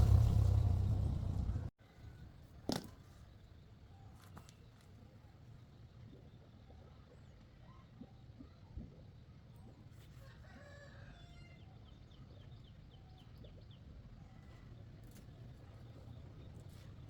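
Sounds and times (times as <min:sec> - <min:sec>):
low steady hum: 0:00.0 - 0:01.7
faint rooster crowing: 0:10.1 - 0:11.8.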